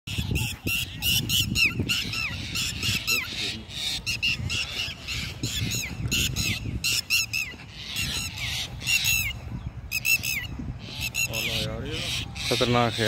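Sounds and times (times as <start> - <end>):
mynas harsh alarm calls: 0.1 - 13.0.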